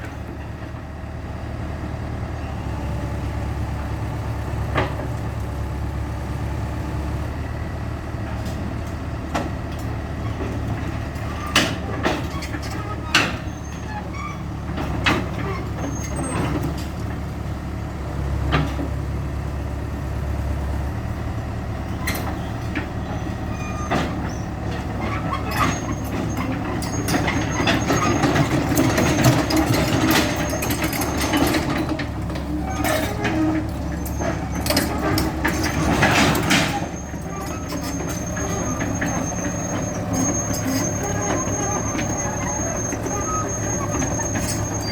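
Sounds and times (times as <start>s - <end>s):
excavator diesel engine running: 0.0s - 44.9s
sharp knocks and clanks: 23.8s - 44.9s.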